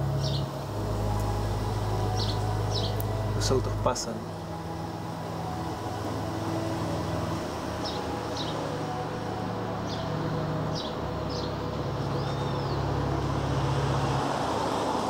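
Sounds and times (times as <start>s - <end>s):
low steady hum: 0.0s - 15.0s
bird chirping: 0.1s - 1.3s, 2.0s - 3.8s, 10.7s - 12.9s.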